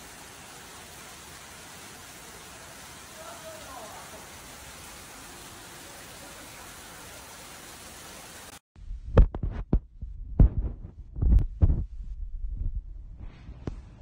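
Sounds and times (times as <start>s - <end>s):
steady hiss: 0.0s - 8.6s
heavy low thumps and knocks: 8.8s - 13.3s.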